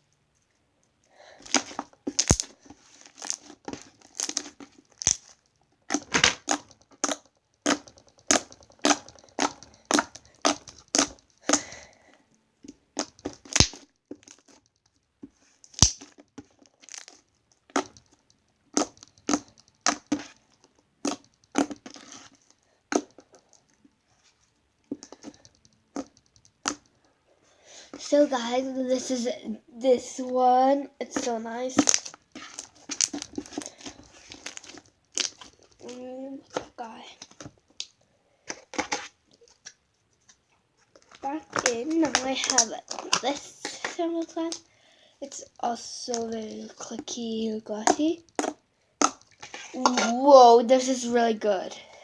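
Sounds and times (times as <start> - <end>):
slime squished by hand: 5.9 - 11.9, 16.9 - 20.4.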